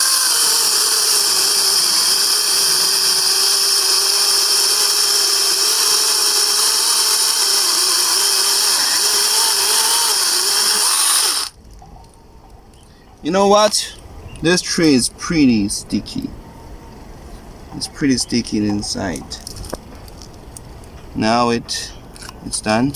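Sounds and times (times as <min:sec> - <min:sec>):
chainsaw cutting tree trunk: 0:00.0 - 0:11.6.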